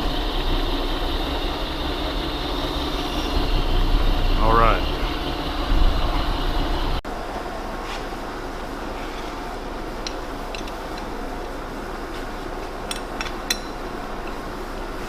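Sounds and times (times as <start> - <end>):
metal lathe running: 0.0 - 7.0.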